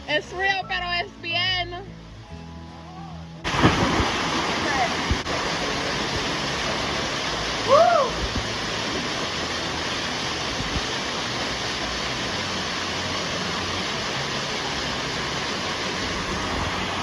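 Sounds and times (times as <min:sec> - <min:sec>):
waterfall rushing: 0:03.4 - 0:17.0.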